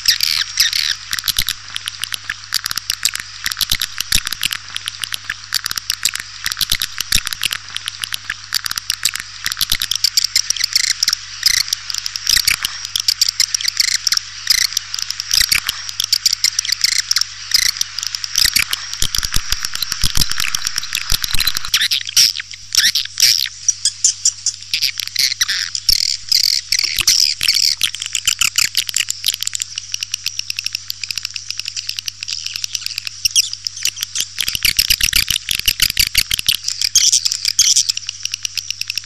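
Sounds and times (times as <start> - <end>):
swiftlet clicks and twitters: 0.0 - 23.3.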